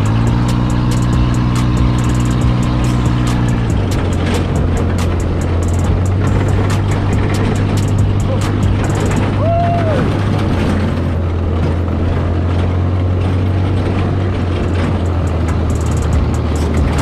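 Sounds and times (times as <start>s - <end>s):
rising and falling tone: 0.0s - 12.9s
buggy engine running: 0.0s - 17.0s
rough track noise: 0.0s - 17.0s.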